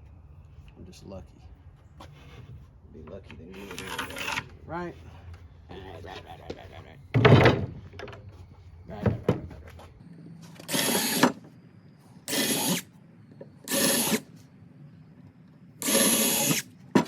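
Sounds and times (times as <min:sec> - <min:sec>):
power drill bursts: 0:03.6 - 0:04.4, 0:10.6 - 0:11.4, 0:12.2 - 0:12.9, 0:13.6 - 0:14.4, 0:15.8 - 0:16.7.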